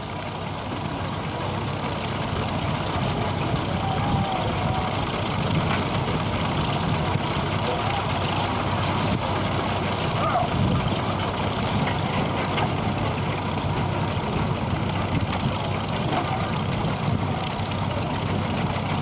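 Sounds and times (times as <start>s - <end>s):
steam engine rumbling: 0.0s - 19.0s
faint voice: 3.5s - 5.0s, 10.2s - 10.6s.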